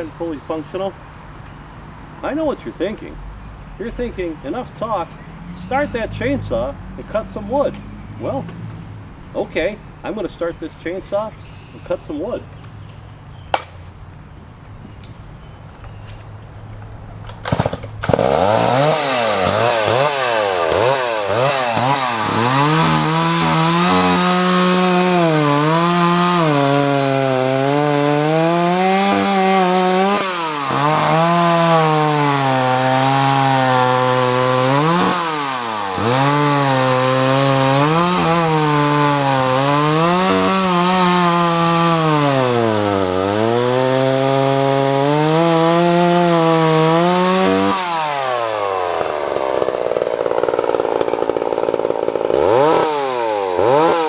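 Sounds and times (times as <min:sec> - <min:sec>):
chainsaw cutting wood: 0:17.3 - 0:54.0
chainsaw revving: 0:17.3 - 0:54.0.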